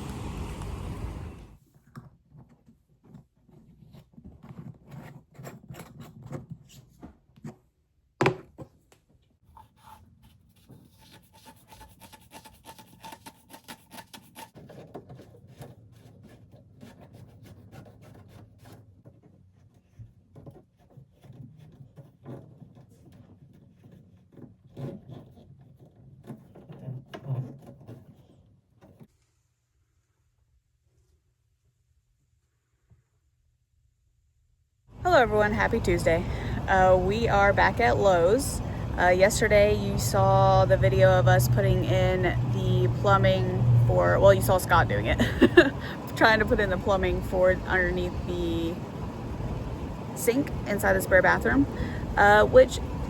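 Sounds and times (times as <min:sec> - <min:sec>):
rubbing and scraping: 0:02.1 - 0:07.7, 0:09.4 - 0:29.5.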